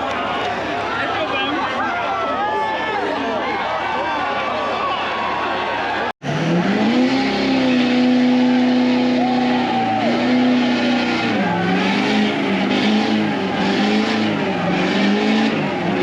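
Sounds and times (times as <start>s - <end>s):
truck engine revving: 6.2s - 16.0s.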